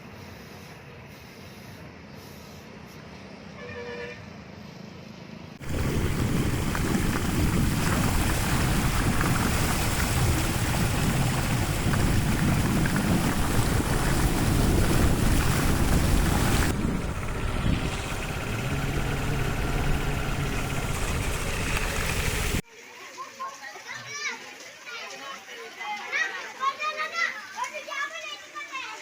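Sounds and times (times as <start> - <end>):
floodwater rushing: 5.6 - 22.6.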